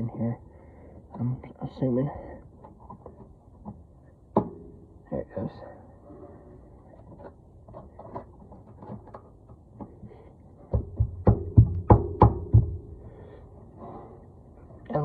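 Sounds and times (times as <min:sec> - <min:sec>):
sharp metal knocks with ringing: 0:10.8 - 0:12.9.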